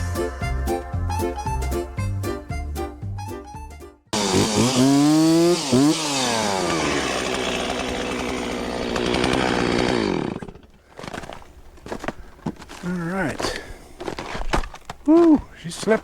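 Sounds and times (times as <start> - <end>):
chainsaw cutting wood: 4.2 - 11.4.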